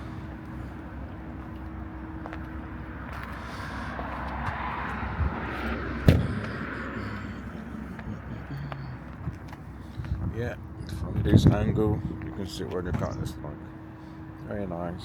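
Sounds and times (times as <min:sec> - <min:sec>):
traffic noise: 0:00.0 - 0:15.0
vehicle passing: 0:02.6 - 0:10.3.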